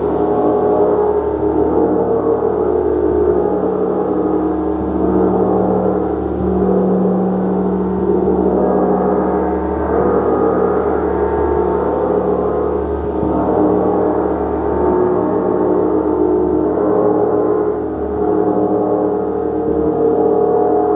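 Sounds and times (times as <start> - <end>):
sustained gong wash: 0.0 - 20.9.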